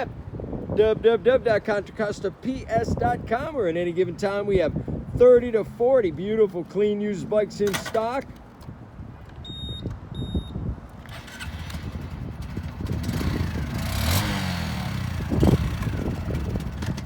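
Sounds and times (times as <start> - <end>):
short electronic beeps: 9.4 - 10.6
motorcycle engine revving: 11.0 - 17.0.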